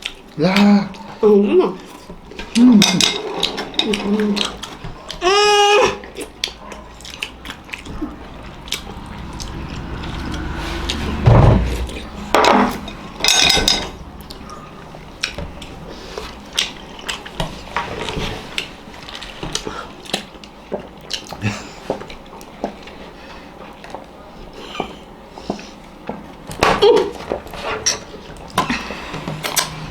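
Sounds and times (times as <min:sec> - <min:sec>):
bursts of noise: 0:06.8 - 0:16.1.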